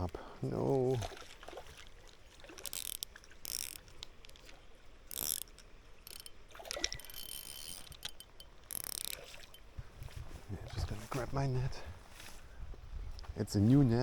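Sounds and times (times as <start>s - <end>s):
fishing reel gears clicking and whirring: 2.6s - 3.9s, 5.1s - 9.7s.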